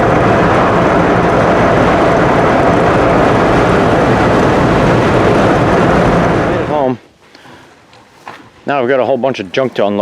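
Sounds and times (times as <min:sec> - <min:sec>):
truck road and engine noise: 0:00.0 - 0:06.9.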